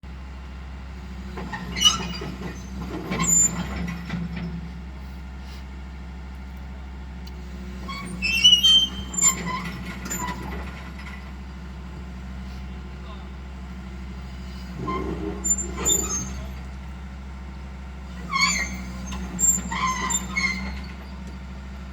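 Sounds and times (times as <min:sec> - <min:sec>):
diesel engine running: 0:00.0 - 0:21.9
metallic squeals and clanks: 0:01.2 - 0:04.6, 0:07.8 - 0:11.4, 0:14.4 - 0:16.8, 0:18.1 - 0:21.6.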